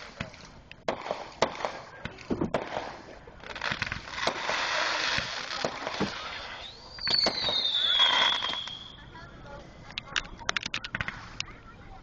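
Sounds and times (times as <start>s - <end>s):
firework bangs: 0.0s - 9.0s
fireworks crackling: 0.0s - 12.0s
firework whistle: 6.0s - 9.0s.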